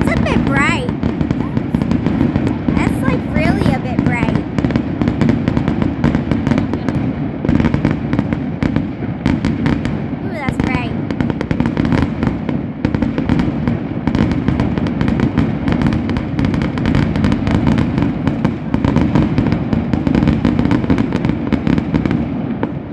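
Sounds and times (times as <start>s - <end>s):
low rumble: 0.0s - 9.2s
fireworks bangs and crackles: 0.0s - 22.9s.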